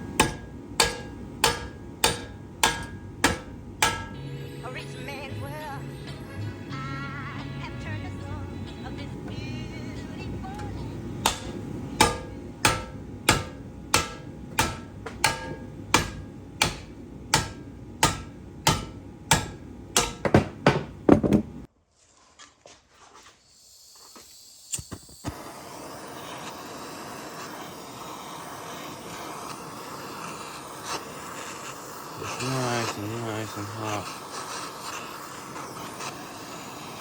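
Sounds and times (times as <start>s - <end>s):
hammer blows on metal: 0.0s - 4.3s, 10.5s - 21.0s.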